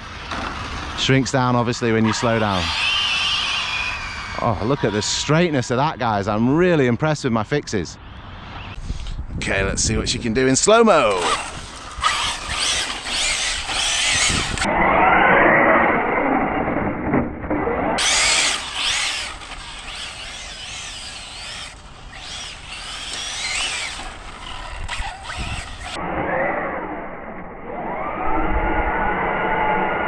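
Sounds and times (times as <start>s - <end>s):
rc car motor whining: 0.0s - 5.7s, 11.0s - 16.5s, 17.5s - 26.9s.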